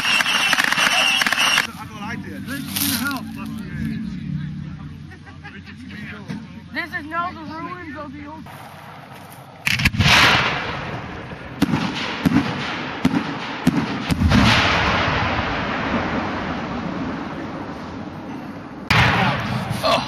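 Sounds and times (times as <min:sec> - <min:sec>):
fireworks bangs with rolling rumble: 0:08.6 - 0:19.8.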